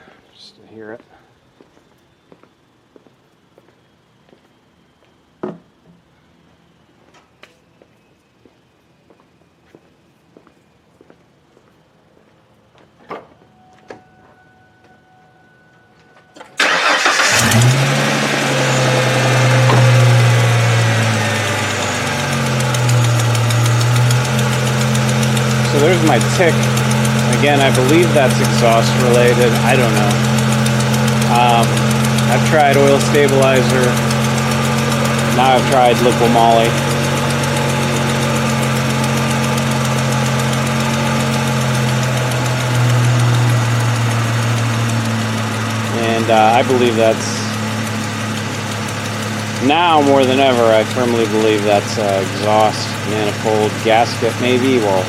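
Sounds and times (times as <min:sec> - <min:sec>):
car engine starting and idling: 0:15.4 - 0:55.0.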